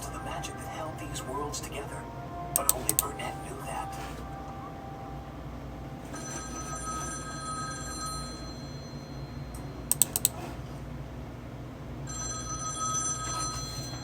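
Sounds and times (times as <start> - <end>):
telephone bell ringing: 0.0 - 9.9, 12.0 - 14.0
sharp clicks: 9.9 - 10.4.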